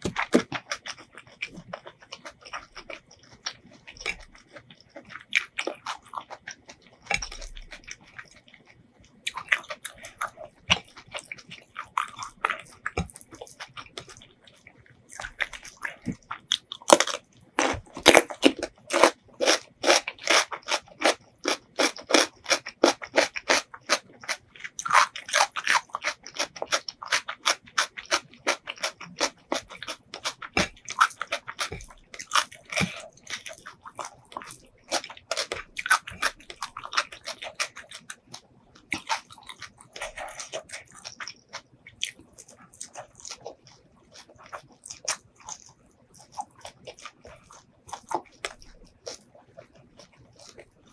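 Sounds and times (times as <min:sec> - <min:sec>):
crunchy chewing: 0:00.0 - 0:50.9.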